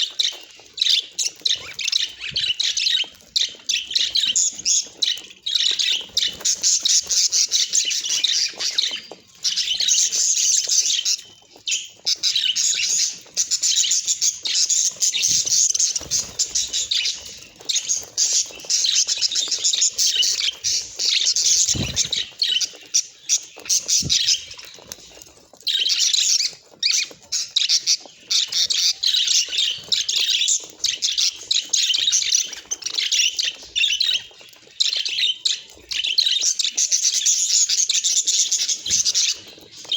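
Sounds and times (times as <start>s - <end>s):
budgerigars chattering: 0.0s - 25.1s.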